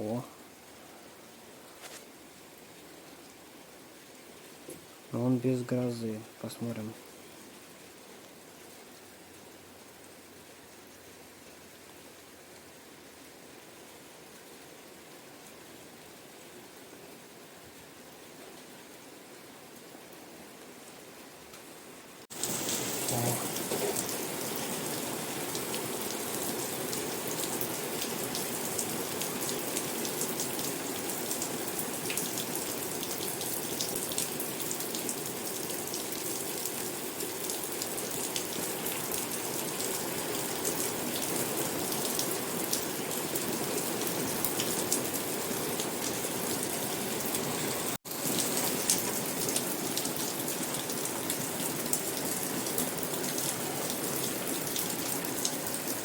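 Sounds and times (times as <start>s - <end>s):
heavy rain pattering: 22.3s - 56.0s.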